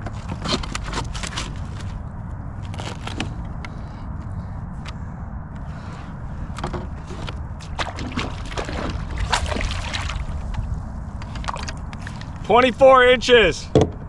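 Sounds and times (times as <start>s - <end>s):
steady low rumble: 1.2s - 13.2s
water sloshing and dripping: 7.3s - 12.5s.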